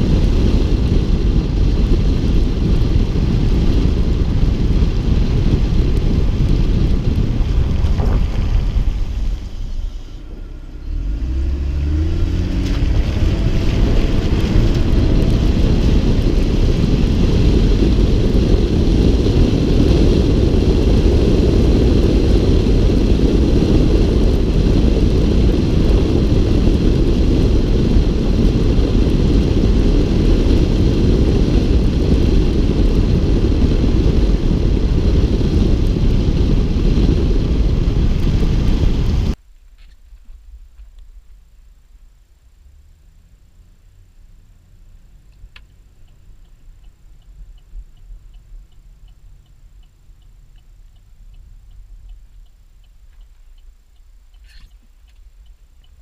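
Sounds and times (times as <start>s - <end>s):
car engine accelerating: 0.0s - 39.4s, 42.3s - 54.0s
wind buffeting microphone: 0.0s - 39.4s
wind and road rumble: 0.0s - 56.0s.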